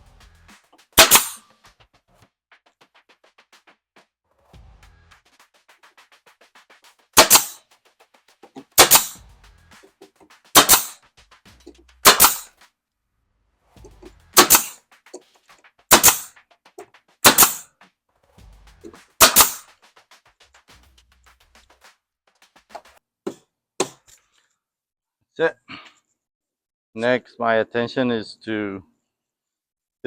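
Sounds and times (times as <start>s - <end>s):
nail gun firing: 1.0s - 1.4s, 7.2s - 7.6s, 8.6s - 9.2s, 10.6s - 11.0s, 12.0s - 12.5s, 14.4s - 14.8s, 15.9s - 16.3s, 17.2s - 17.6s, 19.2s - 19.6s.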